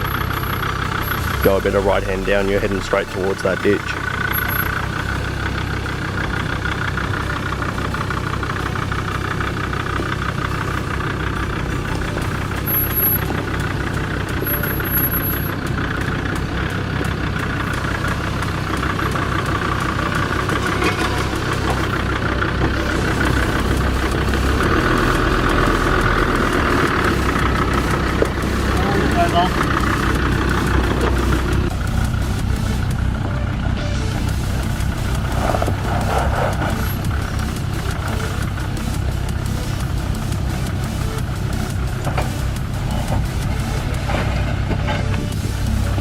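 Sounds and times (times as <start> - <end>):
vehicle engine running: 0.0 - 46.0.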